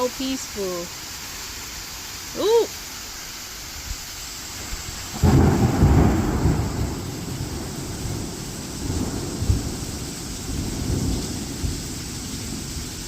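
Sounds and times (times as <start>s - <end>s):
rain falling: 0.0s - 13.0s
thunder rumbling: 5.0s - 13.0s.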